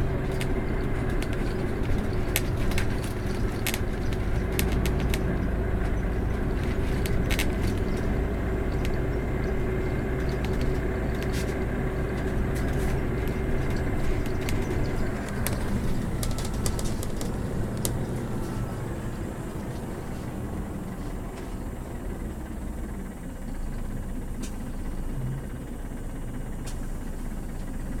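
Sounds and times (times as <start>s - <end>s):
sharp clicks and rattles: 0.0s - 21.4s
bus engine and road rumble: 0.0s - 28.0s.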